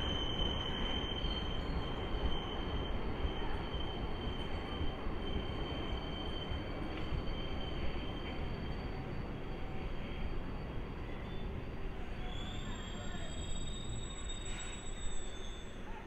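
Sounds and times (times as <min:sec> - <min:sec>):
train coaches passing: 0:00.0 - 0:16.0
train wheels squealing: 0:00.0 - 0:16.0.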